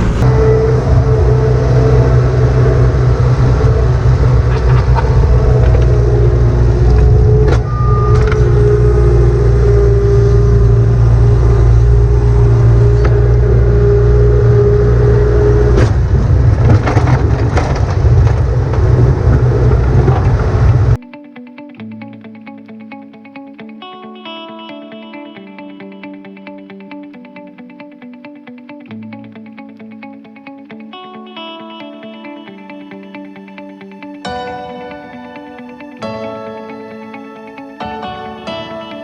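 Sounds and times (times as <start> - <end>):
tractor engine under load: 0.0 - 21.0.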